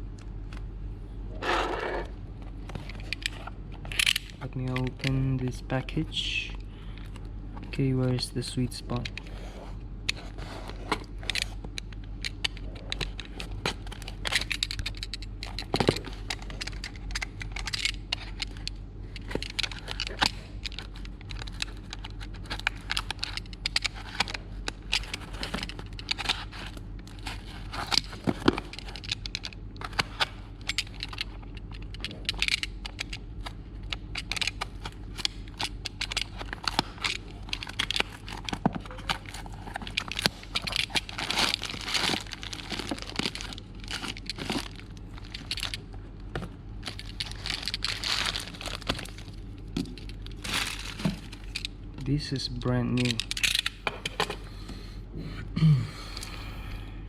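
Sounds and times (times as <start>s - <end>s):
steady low hum: 0.0s - 57.0s
packaging crackling and tearing: 19.2s - 51.7s.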